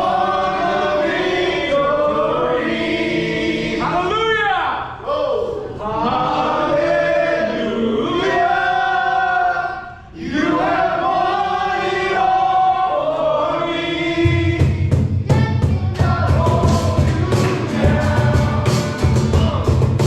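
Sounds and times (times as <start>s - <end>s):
group of voices singing: 0.0s - 4.1s, 5.6s - 20.0s
drums and bass beat: 14.3s - 20.0s.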